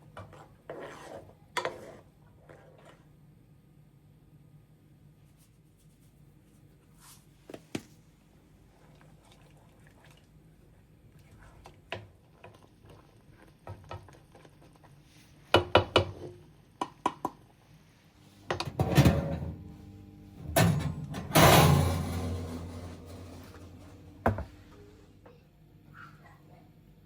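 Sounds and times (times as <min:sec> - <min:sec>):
utensils and dishes clinking: 0:20.4 - 0:24.3.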